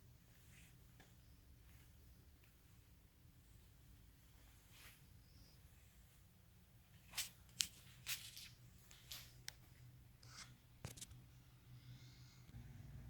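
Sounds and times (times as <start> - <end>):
faint low hum: 0.0 - 13.0
light clicks and rustles: 6.9 - 11.2.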